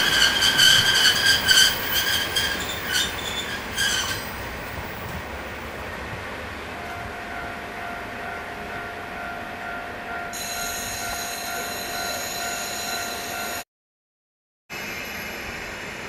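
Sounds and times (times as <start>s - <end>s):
high-pitched wheel squeal: 0.0s - 4.4s
low train rumble: 0.0s - 13.6s, 14.7s - 16.0s.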